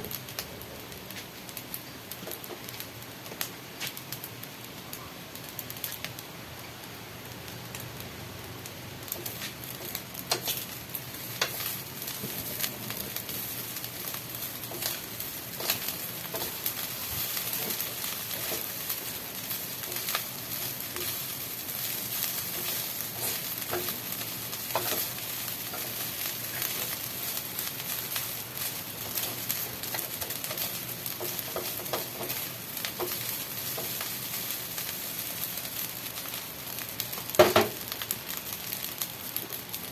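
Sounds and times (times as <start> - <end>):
food sizzling in a frying pan: 0.0 - 39.9.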